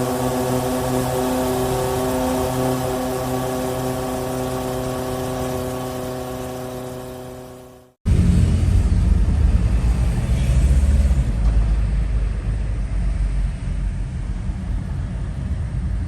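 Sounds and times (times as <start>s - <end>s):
wind and road noise on motorbike: 8.1s - 16.0s.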